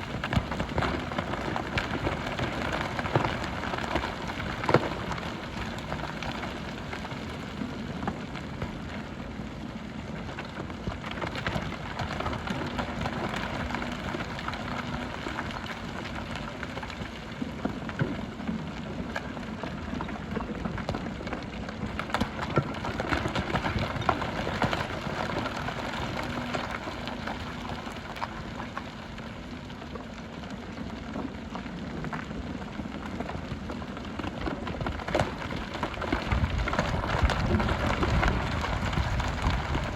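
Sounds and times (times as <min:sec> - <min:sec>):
gravel and stones clattering: 0:10.3 - 0:29.3, 0:31.0 - 0:39.9.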